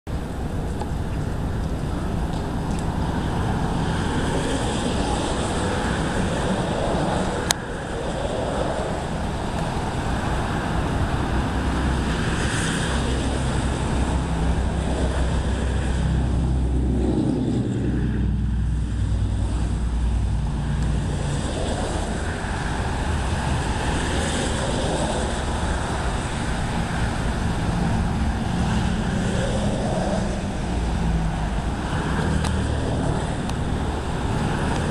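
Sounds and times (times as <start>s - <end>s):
storm wind gusting: 0.1s - 34.9s.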